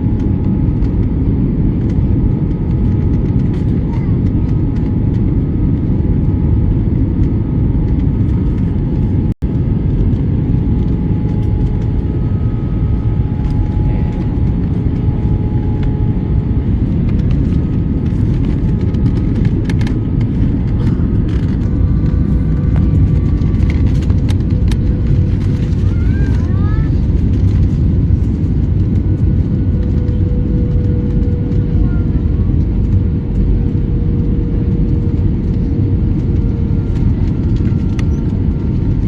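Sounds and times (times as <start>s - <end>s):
airliner cabin engine rumble: 0.0s - 39.0s.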